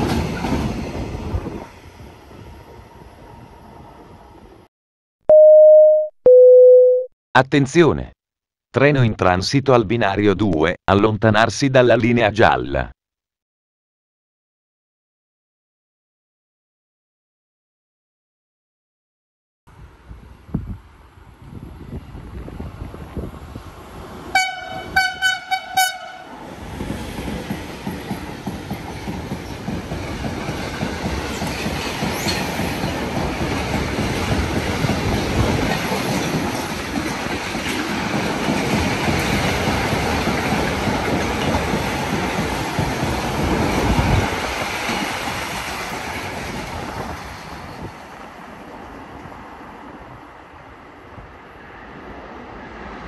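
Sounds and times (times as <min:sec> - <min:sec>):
train wheels rumbling on rails: 0:00.0 - 0:02.8, 0:26.4 - 0:49.3
train horn short toots: 0:24.4 - 0:26.2.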